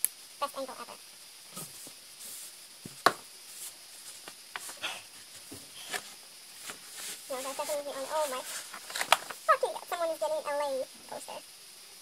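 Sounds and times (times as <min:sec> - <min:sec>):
paper and packaging rustling: 0:01.7 - 0:09.5
sharp tap: 0:02.9 - 0:03.2.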